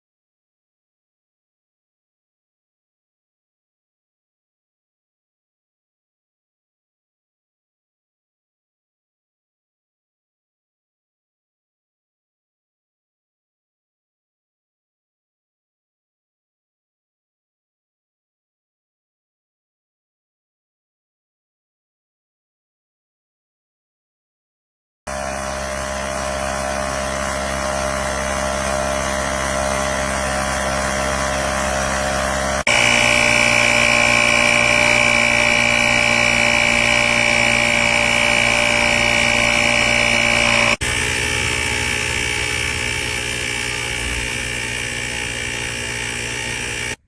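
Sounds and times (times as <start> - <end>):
small air compressor running: 25.1 - 47.0.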